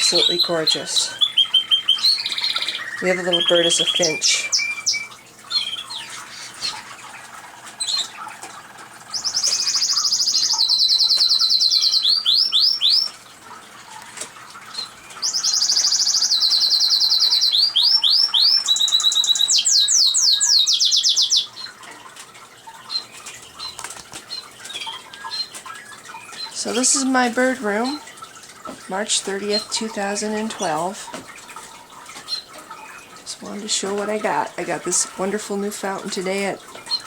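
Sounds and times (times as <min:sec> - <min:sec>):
canary singing trills: 0:00.0 - 0:37.0.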